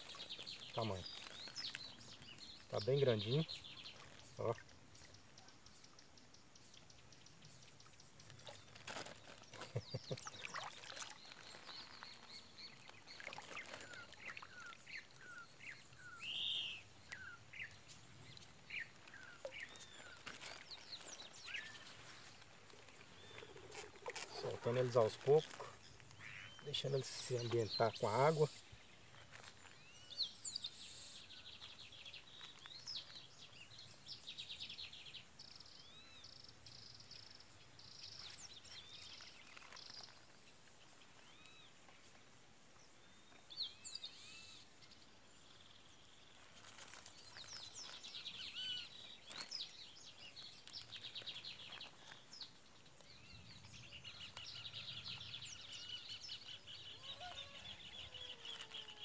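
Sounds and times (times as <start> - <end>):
birds chirping and trilling: 0.0 - 4.6, 46.8 - 59.0.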